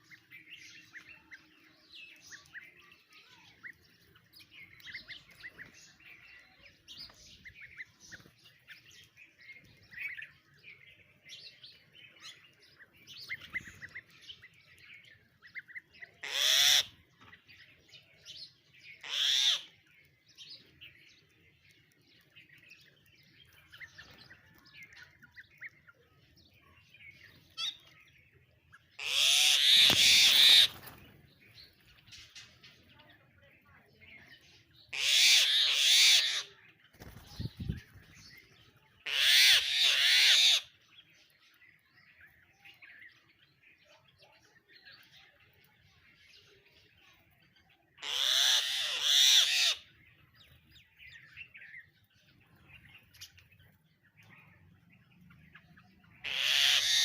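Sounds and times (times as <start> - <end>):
small birds chirping: 0.0 - 57.0
loud harsh bird calls: 15.5 - 17.1, 18.8 - 19.8, 28.9 - 32.4, 34.8 - 38.3, 39.0 - 40.9, 48.0 - 50.2, 55.3 - 57.0.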